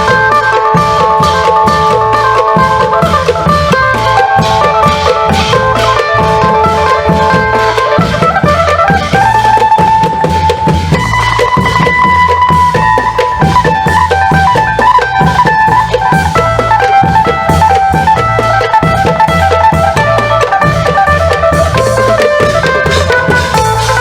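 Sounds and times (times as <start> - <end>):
long drums playing rhythm: 0.0 - 24.0
amplified lute melody: 14.1 - 24.0.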